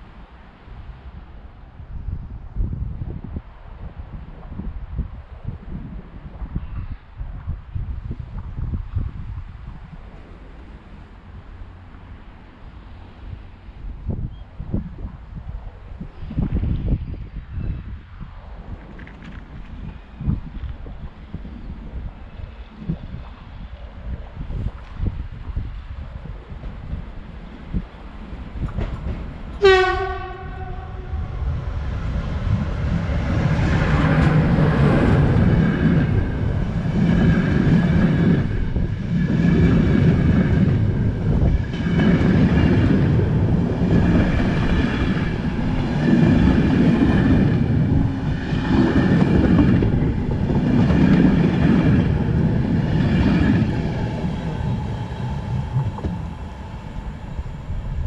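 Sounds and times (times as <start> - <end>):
train wheels clattering on rails: 26.6 - 30.7, 32.5 - 56.6
train horn blast: 29.6 - 31.4.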